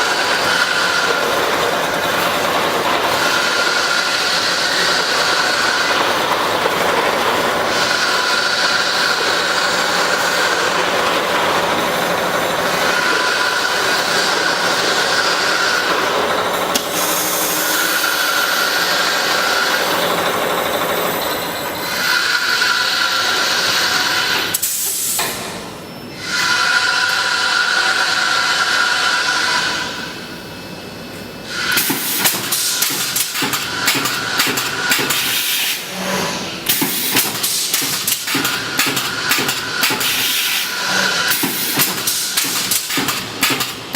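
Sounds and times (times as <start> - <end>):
welding machine hissing: 0.0 - 20.7, 31.5 - 43.9
machine whining tone: 0.0 - 43.9
rapid clatter of clicks: 41.3 - 43.9.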